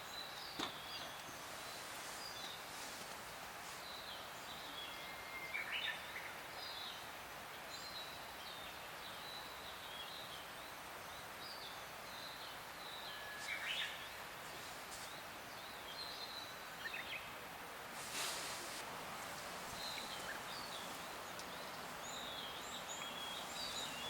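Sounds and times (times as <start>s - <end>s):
outdoor background hiss: 0.0s - 24.0s
birds chirping: 18.0s - 24.0s.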